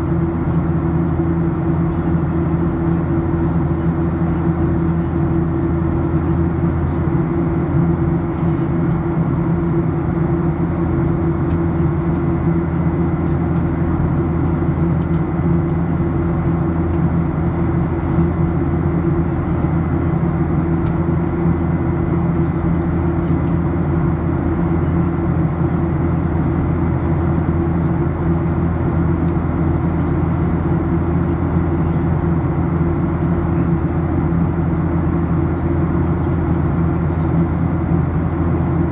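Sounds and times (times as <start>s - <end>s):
aircraft engines droning: 0.0s - 38.9s.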